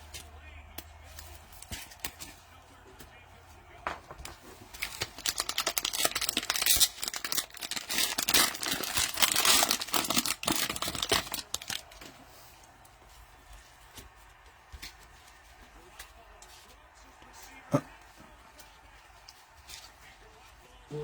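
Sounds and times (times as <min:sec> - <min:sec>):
cellophane wrapper crinkling: 0:04.2 - 0:12.8.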